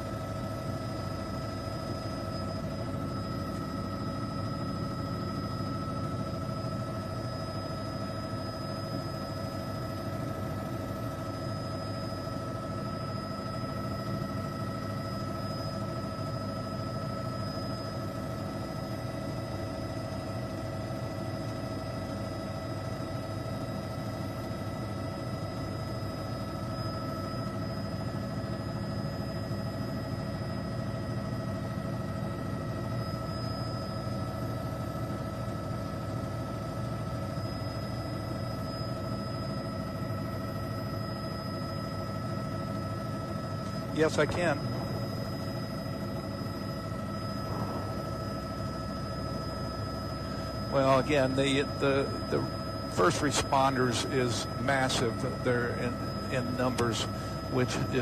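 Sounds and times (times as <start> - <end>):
helicopter engine and rotor drone: 0.0 - 58.0
high-pitched whines: 41.1 - 58.0.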